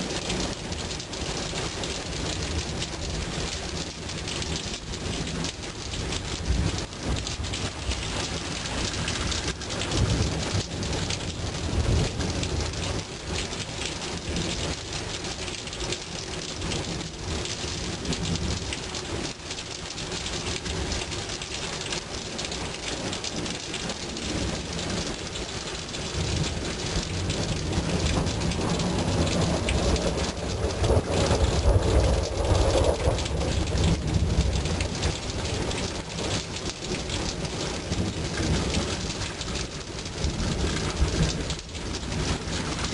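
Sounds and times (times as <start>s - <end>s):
heavy rain falling: 0.0s - 42.9s
low rolling thunder: 4.4s - 14.8s, 23.3s - 42.9s.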